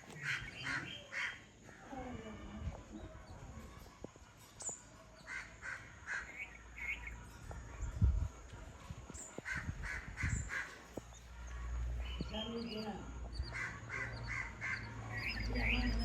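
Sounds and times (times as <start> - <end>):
bird calling: 0.0 - 1.5, 9.4 - 16.0.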